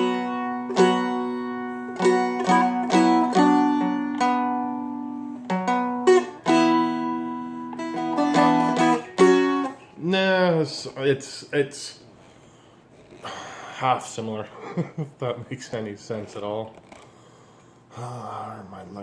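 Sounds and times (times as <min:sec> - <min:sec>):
dulcimer picked and strummed: 0:00.0 - 0:09.8.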